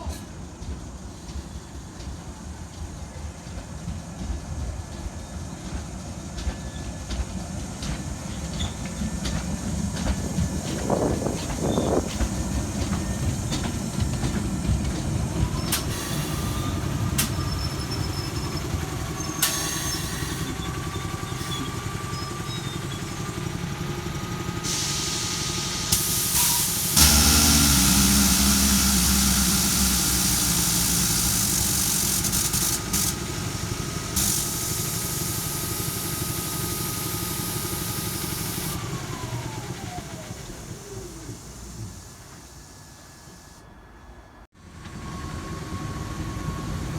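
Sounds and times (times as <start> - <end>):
high electrical whine of train: 0.0 - 46.9
loud hissing: 24.5 - 43.4.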